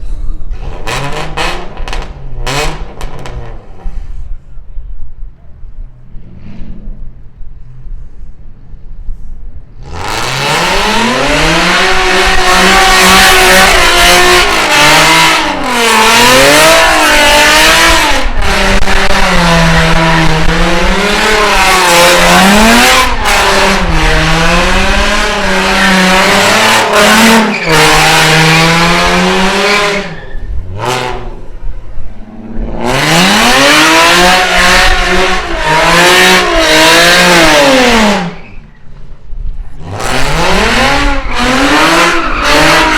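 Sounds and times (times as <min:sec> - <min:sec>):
car engine revving: 0:00.5 - 0:03.9, 0:09.8 - 0:38.6, 0:39.6 - 0:42.9
tyres squealing: 0:27.2 - 0:28.9.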